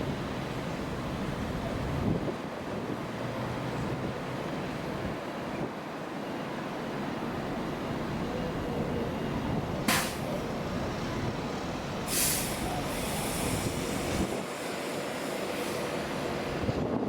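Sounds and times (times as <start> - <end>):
train rumbling: 0.0 - 17.0
air hiss: 9.9 - 10.4, 12.0 - 16.6.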